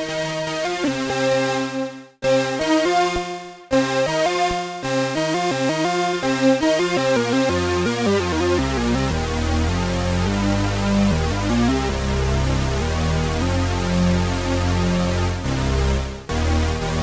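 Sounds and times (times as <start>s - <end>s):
low synth bass: 7.5s - 17.0s.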